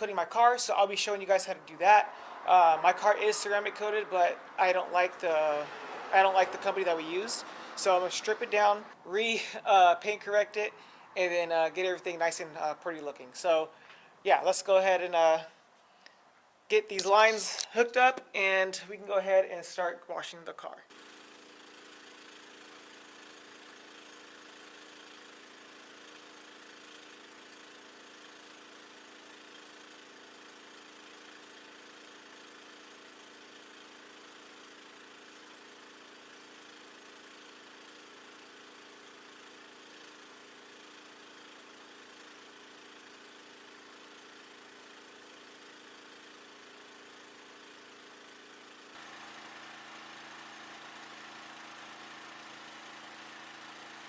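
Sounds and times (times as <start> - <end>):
engine idling: 20.9 - 54.0.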